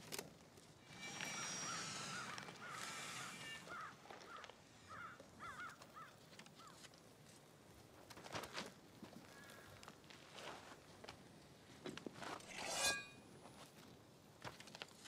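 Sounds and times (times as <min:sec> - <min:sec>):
light outdoor hiss: 0:00.0 - 0:15.0
birds calling: 0:00.9 - 0:06.8.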